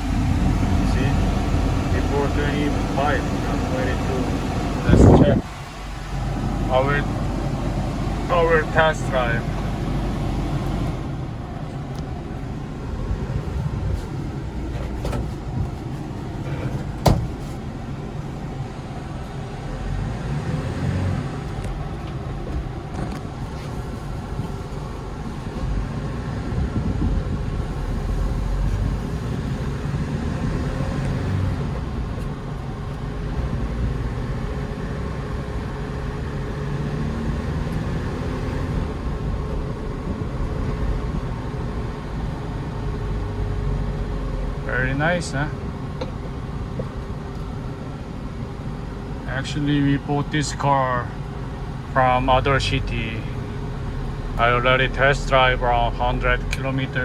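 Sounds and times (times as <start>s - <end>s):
truck engine and road rumble: 0.0s - 57.0s.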